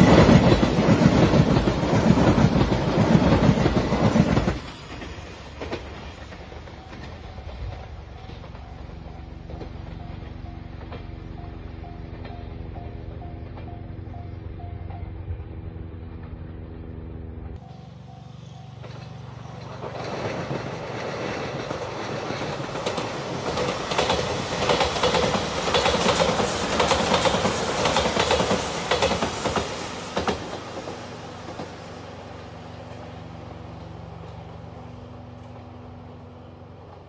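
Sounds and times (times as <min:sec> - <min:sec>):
wheels clicking over rail joints: 0:00.0 - 0:15.4, 0:17.4 - 0:35.8
train passing: 0:00.0 - 0:37.0.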